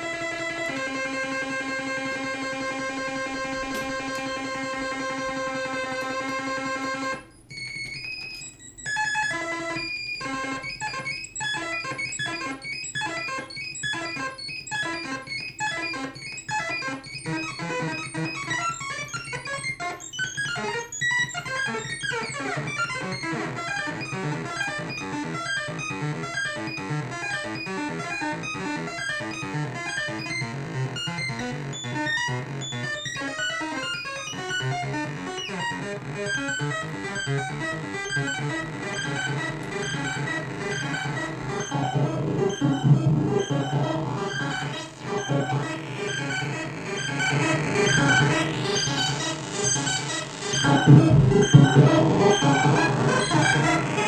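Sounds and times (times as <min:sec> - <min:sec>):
synthesizer note pattern with echoes: 0:34.1 - 0:54.0
held synth tone: 0:38.2 - 0:54.0
falling synth sweep: 0:38.8 - 0:54.0.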